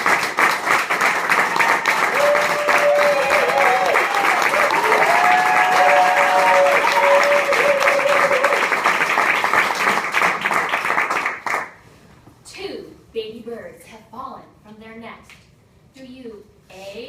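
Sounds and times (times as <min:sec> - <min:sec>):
audience clapping: 0:00.0 - 0:11.8.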